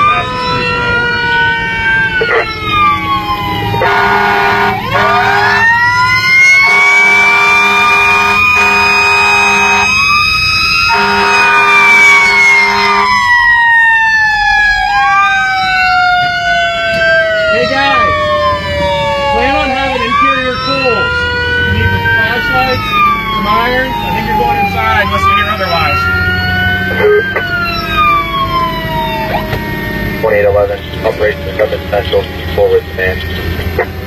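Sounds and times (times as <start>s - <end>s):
fire engine sirens wailing: 0.0s - 34.0s
blaring horn: 3.7s - 13.4s
low engine rumble: 15.4s - 34.0s.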